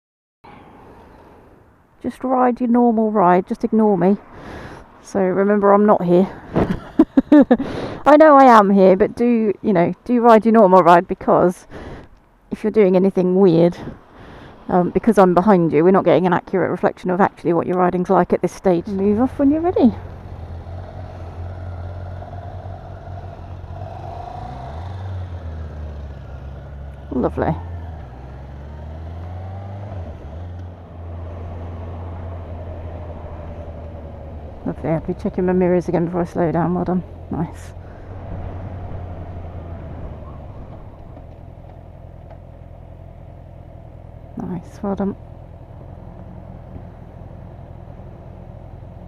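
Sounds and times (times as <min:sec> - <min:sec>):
wind and road noise: 0:00.4 - 0:49.0
motorcycle engine running: 0:18.8 - 0:49.0.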